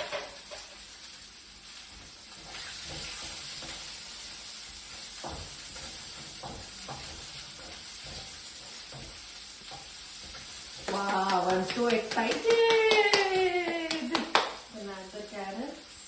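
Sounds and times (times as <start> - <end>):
onion sizzling in hot oil: 0.0 - 16.0.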